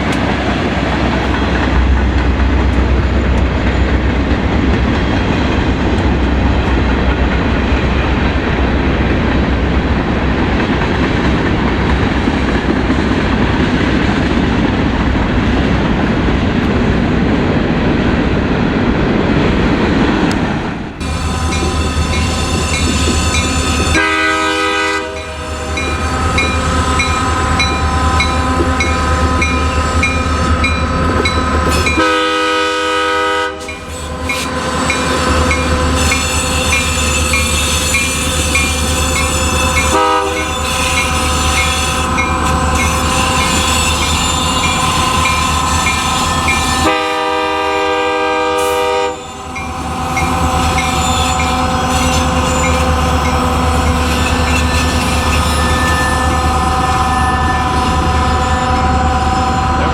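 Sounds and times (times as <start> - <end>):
passing train rumble: 0.0 - 59.9
locomotive horn: 21.0 - 50.0.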